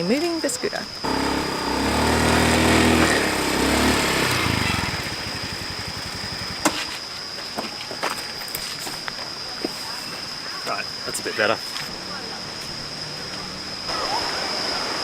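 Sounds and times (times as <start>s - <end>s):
scooter engine idling: 1.0s - 7.0s.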